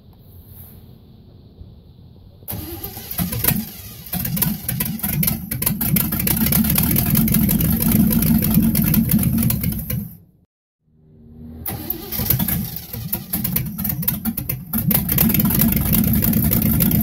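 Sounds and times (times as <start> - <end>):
engine running loudly: 2.5 - 10.0, 14.8 - 17.0
car engine cranking: 2.5 - 10.2, 11.7 - 17.0.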